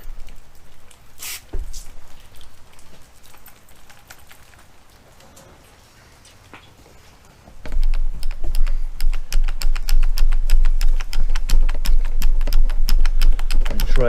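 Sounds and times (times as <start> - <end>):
polishing pad clicking and tapping: 7.6 - 14.0.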